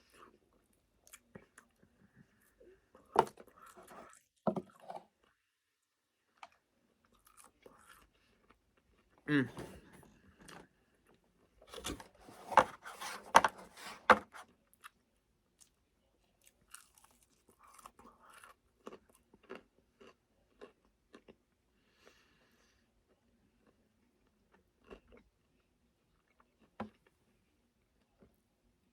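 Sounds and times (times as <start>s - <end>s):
chewing crispy fried chicken: 6.3s - 9.5s, 14.4s - 28.4s.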